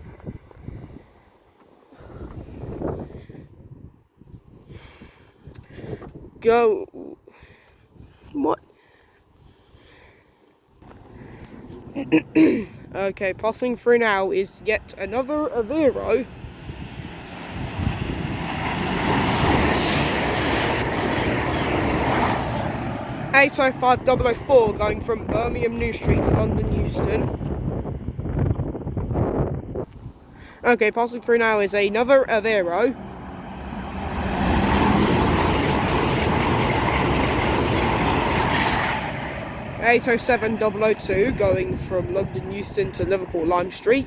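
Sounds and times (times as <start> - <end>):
train passing at speed: 14.1 - 44.0.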